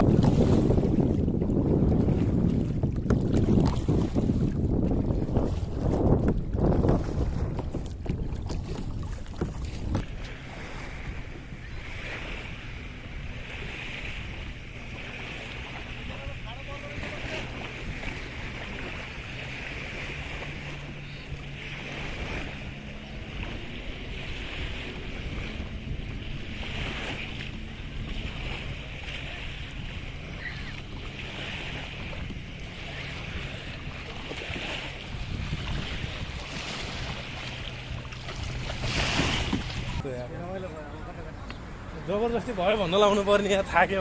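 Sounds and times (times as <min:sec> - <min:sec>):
low hum: 0:00.0 - 0:42.1
water splashing in swells: 0:00.0 - 0:44.0
wind buffeting microphone: 0:00.0 - 0:44.0.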